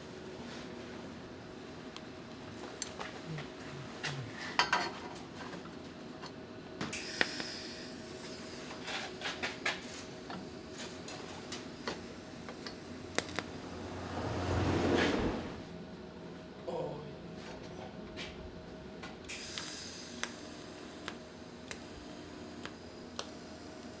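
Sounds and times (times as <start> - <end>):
rush of noise: 13.4 - 15.7.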